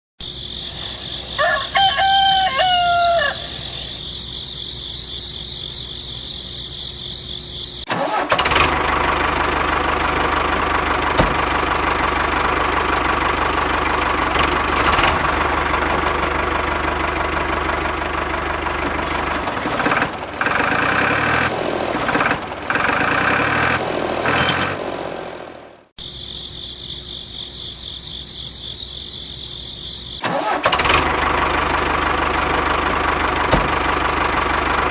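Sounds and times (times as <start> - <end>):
rooster crowing: 1.0 - 4.0.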